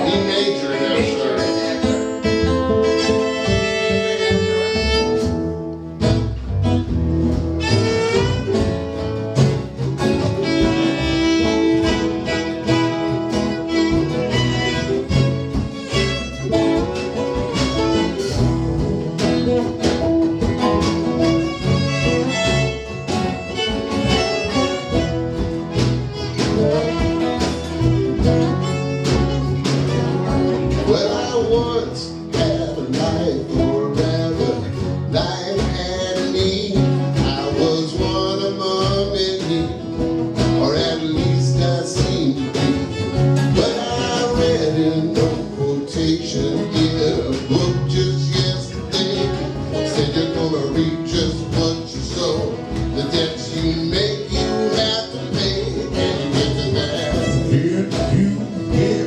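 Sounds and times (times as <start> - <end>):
fiddle melody: 0.0 - 59.0
strummed guitar: 0.0 - 59.0.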